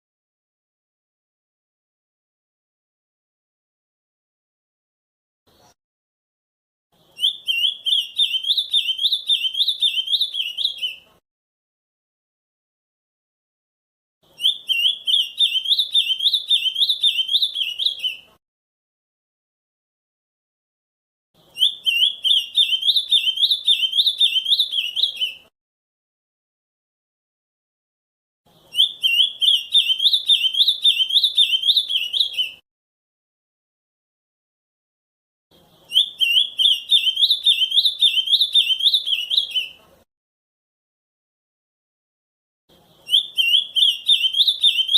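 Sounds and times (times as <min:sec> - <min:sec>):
bird singing warbling phrase: 0:07.2 - 0:11.0, 0:14.4 - 0:18.3, 0:21.6 - 0:25.5, 0:28.7 - 0:32.6, 0:35.9 - 0:39.8, 0:43.0 - 0:44.9.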